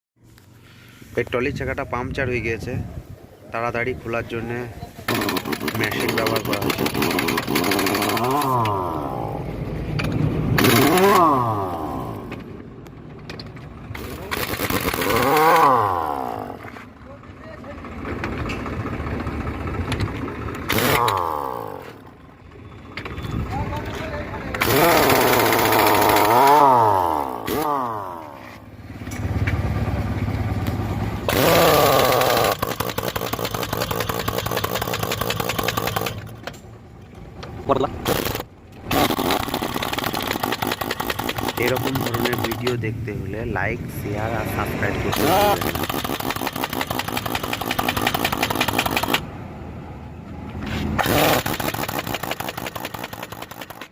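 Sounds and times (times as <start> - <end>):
impact wrench whirring: 5.1 - 9.3, 10.6 - 12.4, 13.9 - 16.7, 20.0 - 22.0, 24.5 - 28.3, 31.3 - 36.5, 38.0 - 42.8, 45.1 - 49.3, 51.0 - 53.9.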